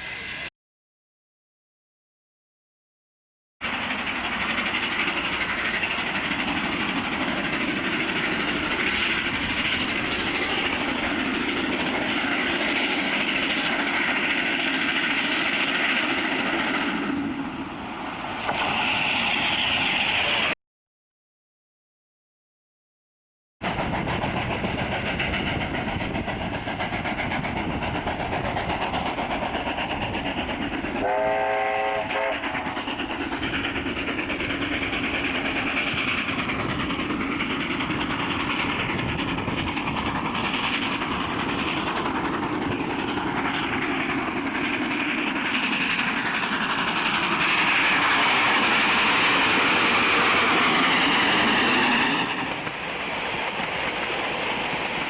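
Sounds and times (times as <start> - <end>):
train wheel clatter and rumble: 3.6 - 20.5, 23.6 - 55.0
train whistle blast: 31.0 - 32.4.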